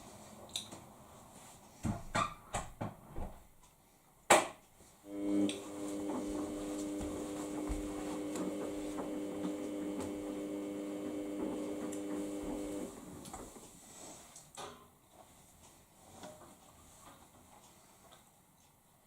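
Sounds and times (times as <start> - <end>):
washing machine humming: 5.1 - 13.6.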